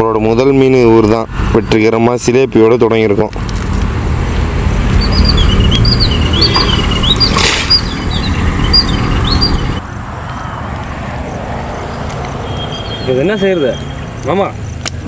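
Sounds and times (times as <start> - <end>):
bird chirping: 4.7 - 9.8, 11.8 - 14.8.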